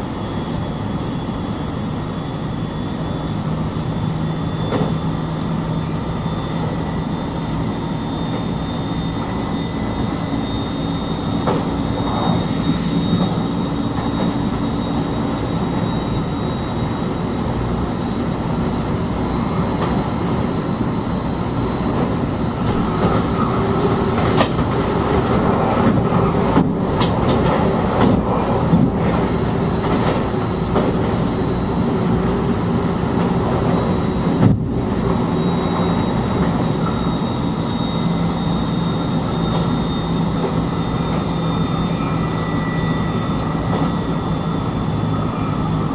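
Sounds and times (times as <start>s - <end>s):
faint high whine: 0.0s - 24.2s, 35.1s - 45.9s
train running rumble: 0.0s - 45.9s
clicks and knocks from track: 25.8s - 29.2s.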